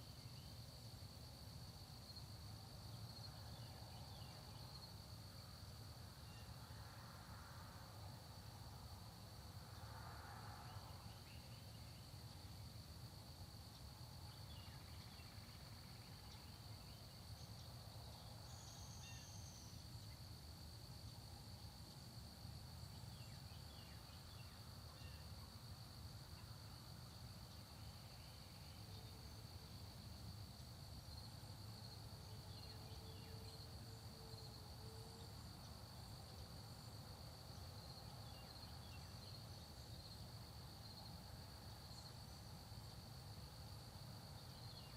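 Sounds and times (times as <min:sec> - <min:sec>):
insects trilling: 0:13.7 - 0:44.9.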